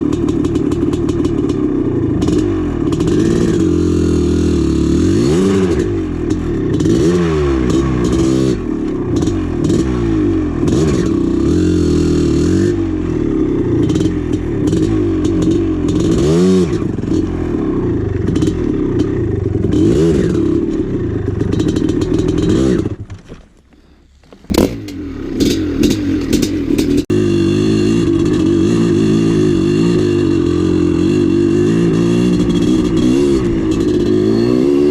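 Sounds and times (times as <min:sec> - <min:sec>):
dirt bike engine revving: 0:00.0 - 0:23.2, 0:23.8 - 0:34.9.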